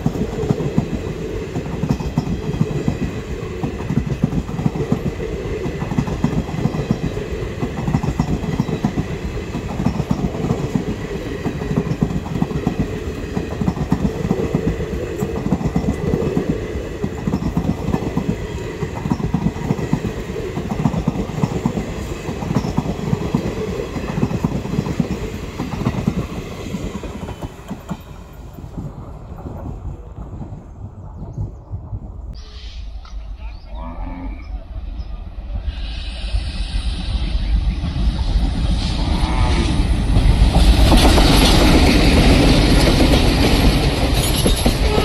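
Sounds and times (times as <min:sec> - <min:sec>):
train wheels rattling over rail joints: 0:00.0 - 0:29.8, 0:39.9 - 0:45.0.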